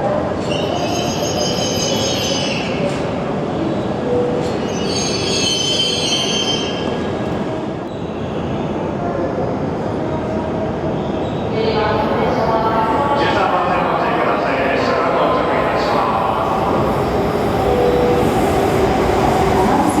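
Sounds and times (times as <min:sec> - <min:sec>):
train rumble: 0:11.6 - 0:20.0.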